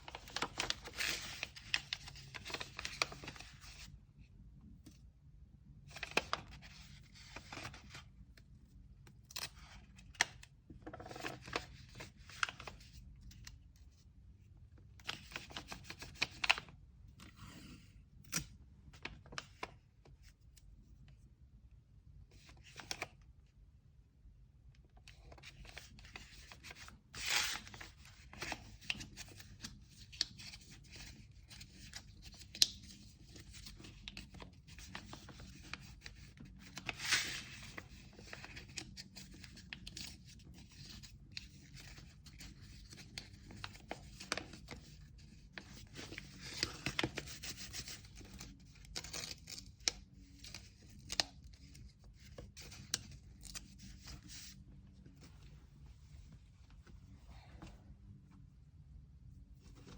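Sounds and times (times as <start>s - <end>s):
paper and tape rustling and tearing: 25.5s - 54.6s.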